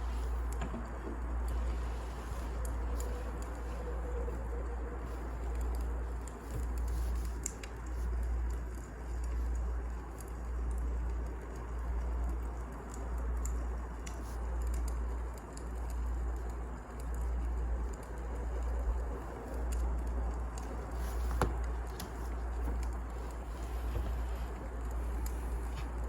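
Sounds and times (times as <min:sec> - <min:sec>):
fire hiss: 0:00.0 - 0:08.8
fire crackling and popping: 0:00.0 - 0:26.0.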